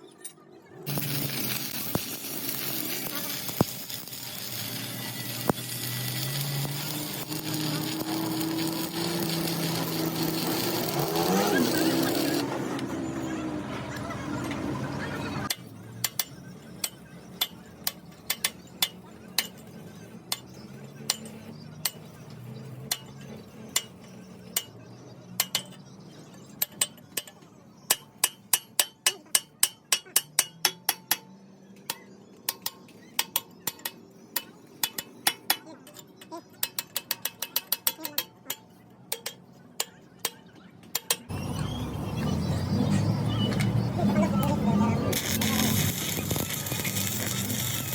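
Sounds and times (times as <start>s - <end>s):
hammer striking metal: 25.4s - 25.8s, 26.6s - 41.4s.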